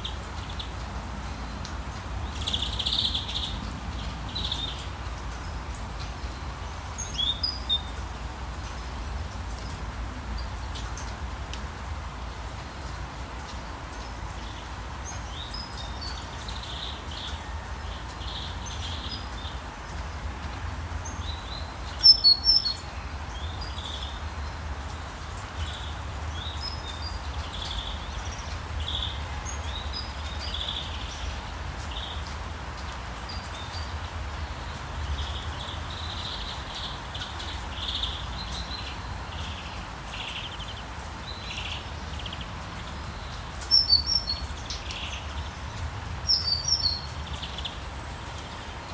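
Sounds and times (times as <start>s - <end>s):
small birds chirping: 0.0s - 8.0s, 21.0s - 48.9s.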